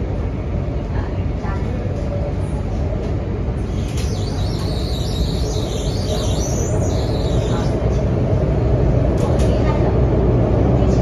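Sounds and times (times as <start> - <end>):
train low rumble: 0.0 - 11.0
high wavering squeal: 3.7 - 8.0.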